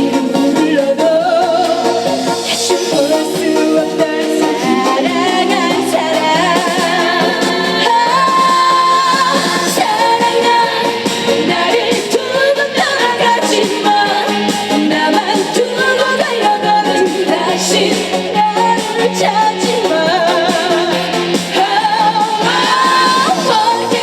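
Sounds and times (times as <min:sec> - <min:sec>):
woman singing: 0:00.0 - 0:24.0.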